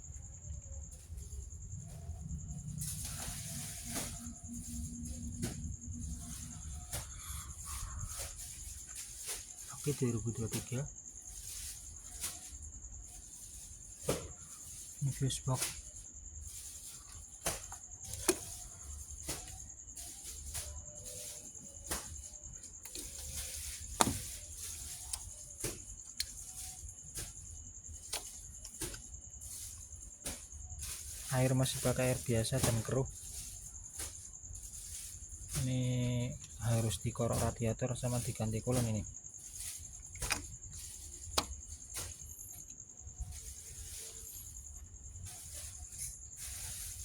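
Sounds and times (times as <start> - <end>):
high-pitched insect trilling: 0.0 - 47.0
steady high-pitched hiss: 0.0 - 47.0
clicks and knocks of car parts: 23.9 - 24.3, 40.1 - 42.1.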